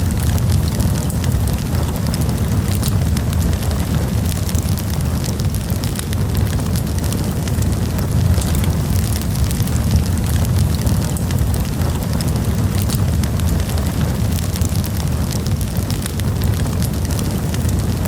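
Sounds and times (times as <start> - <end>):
low rumble of flames: 0.0 - 18.0
wood crackling and popping: 0.0 - 18.0.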